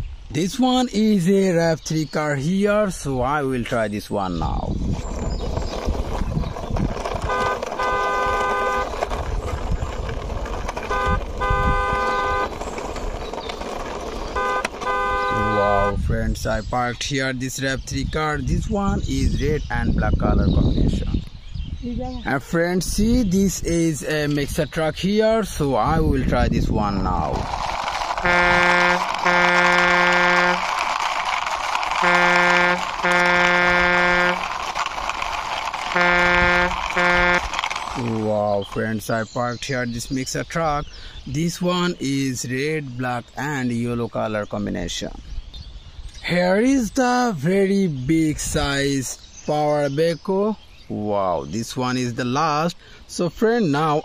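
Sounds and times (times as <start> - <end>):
car horn honking: 7.2 - 9.1, 10.7 - 12.9, 14.2 - 16.0, 28.1 - 30.7, 32.0 - 34.6, 35.8 - 37.8.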